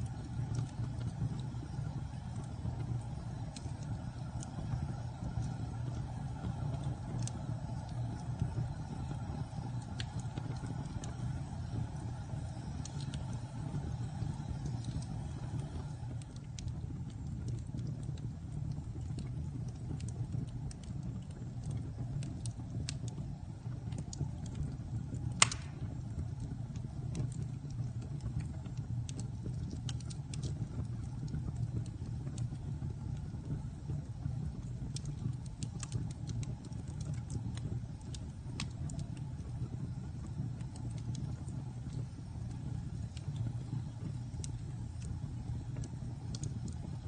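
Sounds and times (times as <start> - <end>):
fire crackling: 0.0 - 47.0
flames rushing: 0.0 - 47.0
loud pop from fire: 25.3 - 26.0.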